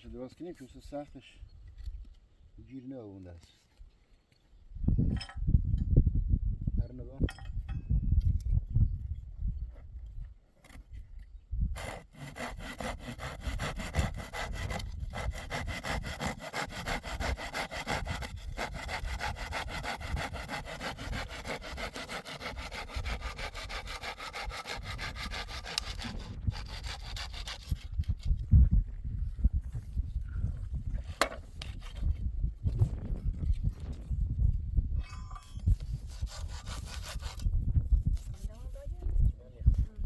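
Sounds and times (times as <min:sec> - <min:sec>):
hand saw cutting wood: 0:11.8 - 0:28.4, 0:35.9 - 0:37.5.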